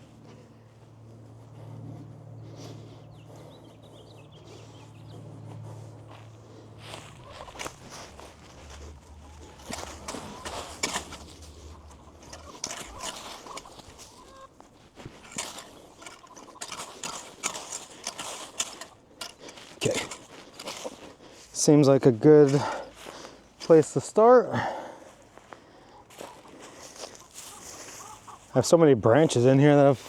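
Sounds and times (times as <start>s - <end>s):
hens clucking: 0.0s - 21.2s, 25.8s - 30.0s
low steady hum: 0.0s - 21.6s
rake scraping through leaves: 5.5s - 21.4s.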